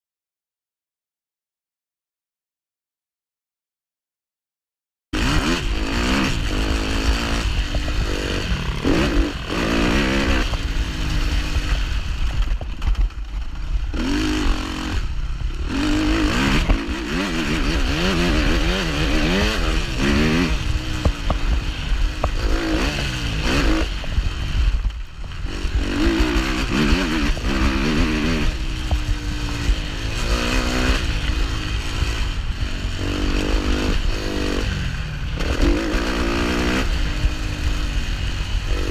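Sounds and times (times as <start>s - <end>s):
motocross bike engine revving: 5.2s - 38.9s.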